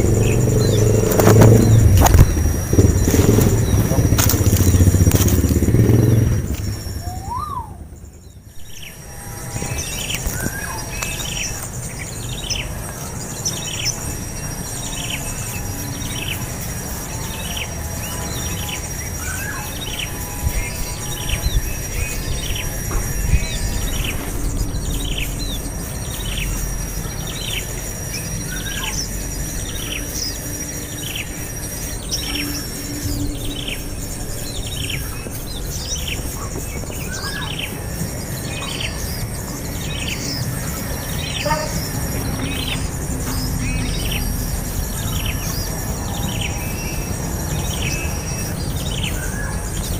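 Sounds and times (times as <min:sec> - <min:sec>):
high chirp sliding downward: 0:00.0 - 0:08.9
high insect drone: 0:00.0 - 0:49.9.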